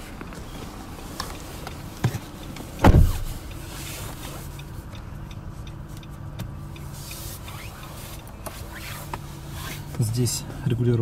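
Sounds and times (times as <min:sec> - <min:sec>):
low hum inside car: 0:00.0 - 0:11.0
heavy low thump: 0:02.8 - 0:03.3.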